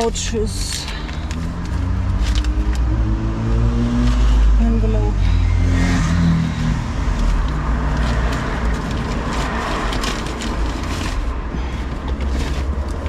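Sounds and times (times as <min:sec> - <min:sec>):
papers and envelopes rustling: 0:00.0 - 0:02.9, 0:06.6 - 0:13.0.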